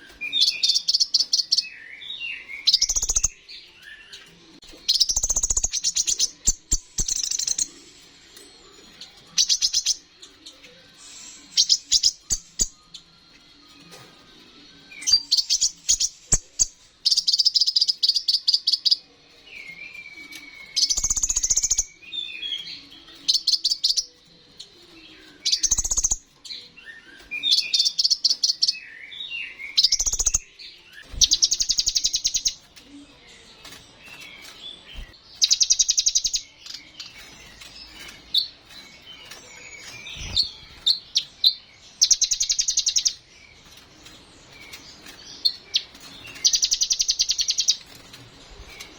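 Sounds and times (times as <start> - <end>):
sunbird singing trills: 19.8 - 24.2, 25.4 - 32.6, 34.4 - 43.3.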